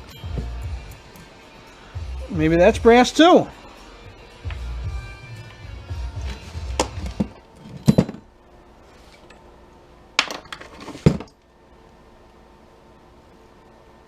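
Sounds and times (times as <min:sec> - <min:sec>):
small metal parts clinking: 0:07.6 - 0:08.3.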